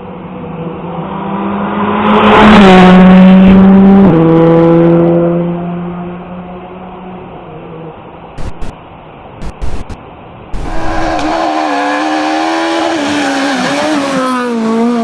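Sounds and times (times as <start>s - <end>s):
rally car engine passing: 10.6s - 15.0s.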